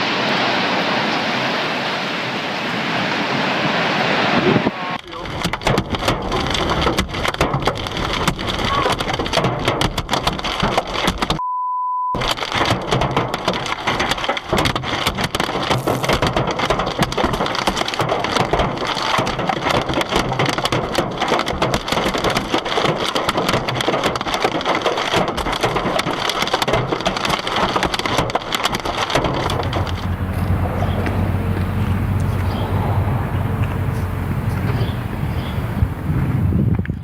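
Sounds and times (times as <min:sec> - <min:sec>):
heavy rain rushing: 0:00.0 - 0:09.3, 0:12.2 - 0:22.2, 0:24.1 - 0:36.6
rain clattering on hard surfaces: 0:05.0 - 0:11.4, 0:12.2 - 0:36.6
censor beep: 0:11.4 - 0:12.2.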